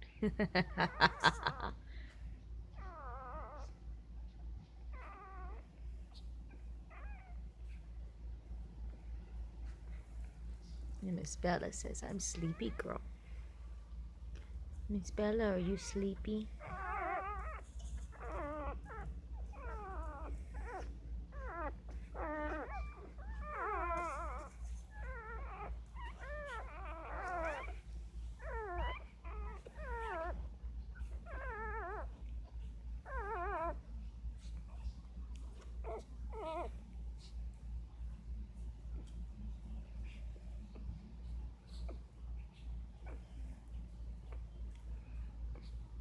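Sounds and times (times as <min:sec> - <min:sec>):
newborn litter squealing and whimpering: 0:02.7 - 0:03.8, 0:05.0 - 0:06.2, 0:11.7 - 0:13.0, 0:15.1 - 0:32.3, 0:33.0 - 0:33.9, 0:35.8 - 0:36.8.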